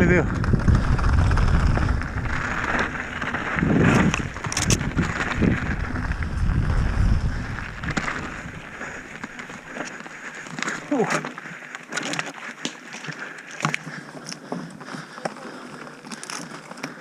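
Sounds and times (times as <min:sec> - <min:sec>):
wind on microphone: 0:00.0 - 0:09.2
bike rattles and clicks: 0:00.0 - 0:17.0
bike tyre noise: 0:00.0 - 0:17.0.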